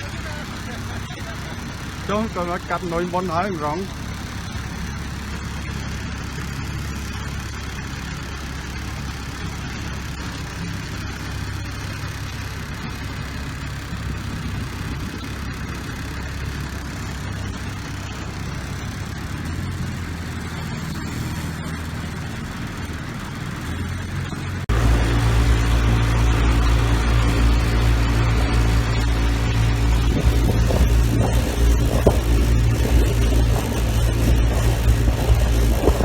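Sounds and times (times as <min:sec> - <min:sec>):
boat engine running: 0:00.0 - 0:36.0
broad rushing noise: 0:24.6 - 0:36.0.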